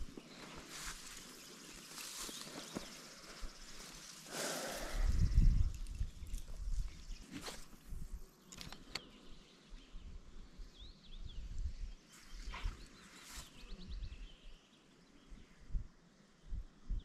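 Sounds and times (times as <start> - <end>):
rustling handling noises: 0.0 - 4.3
small birds chirping: 0.0 - 17.0
wind rumble on microphone: 4.7 - 8.2, 9.9 - 12.8, 15.3 - 17.0.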